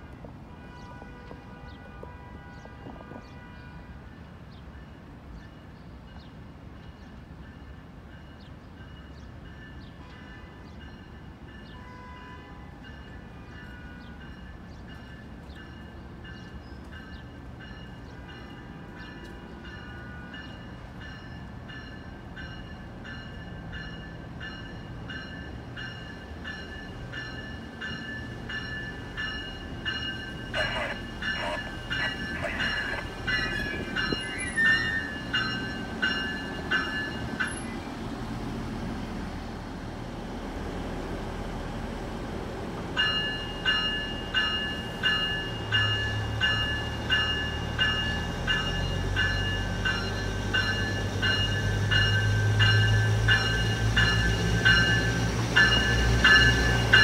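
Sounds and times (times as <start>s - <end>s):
train rumble: 0.0s - 57.0s
heavy train clatter: 13.6s - 38.4s, 42.6s - 57.0s.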